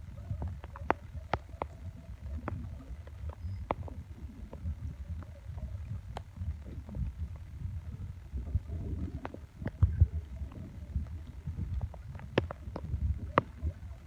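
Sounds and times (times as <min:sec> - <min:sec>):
boat rumble: 0:00.0 - 0:14.0
sharp ticks and knocks: 0:11.7 - 0:13.7.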